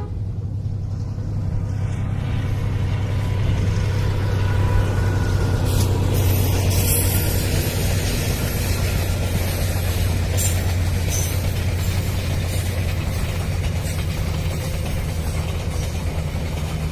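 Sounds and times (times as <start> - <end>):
diesel train engine drone: 0.0 - 16.9
wheels rumbling on rail: 0.0 - 16.9
high-pitched scrapes: 5.6 - 12.7.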